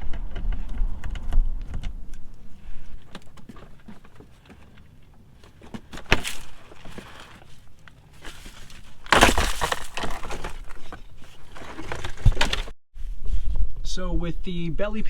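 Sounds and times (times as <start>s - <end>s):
panel crackling and scraping: 0.0s - 12.8s.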